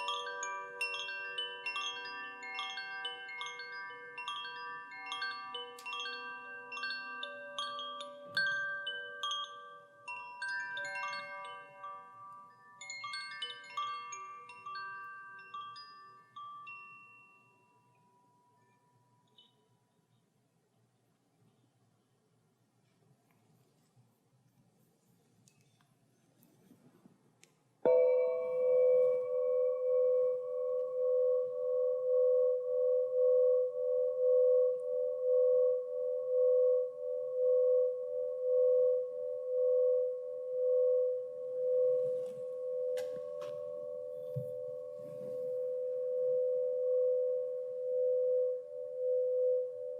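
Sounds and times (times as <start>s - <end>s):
metal chimes ringing: 0.0s - 19.6s, 27.9s - 31.6s.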